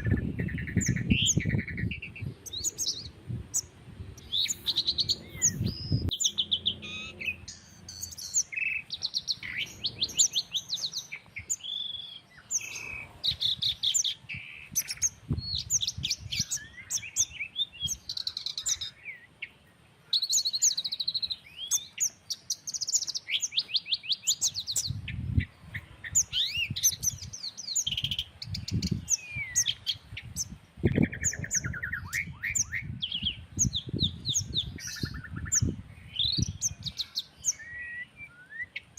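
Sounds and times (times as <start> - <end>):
wind rumble on microphone: 0.0 - 8.4, 12.5 - 18.8, 24.5 - 37.1
birds chirping and trilling: 0.0 - 38.9.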